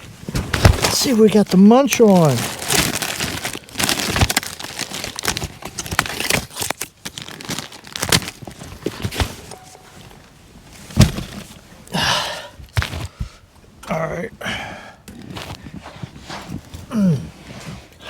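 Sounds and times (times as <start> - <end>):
plastic packaging crinkling: 0.6 - 9.6.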